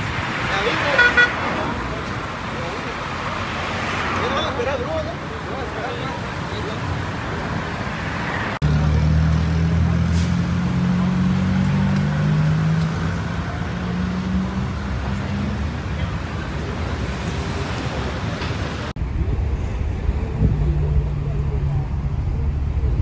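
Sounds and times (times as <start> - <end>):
street traffic noise: 0.0 - 23.0.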